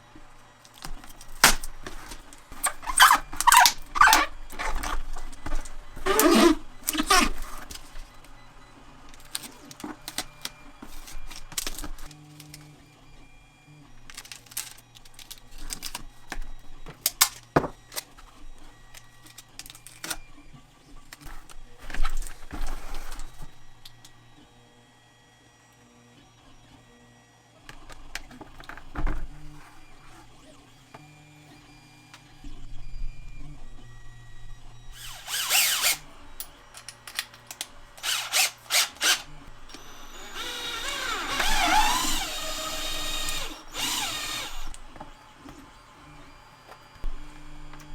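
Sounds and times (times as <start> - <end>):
hard parts clicking and clattering: 35.0 - 44.8.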